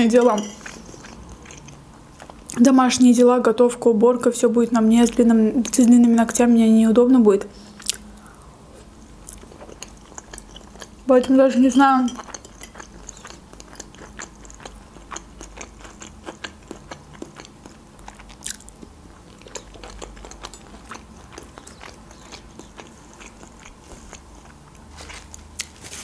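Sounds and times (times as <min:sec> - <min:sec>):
mouth clicks and smacks chewing: 0:12.2 - 0:24.6.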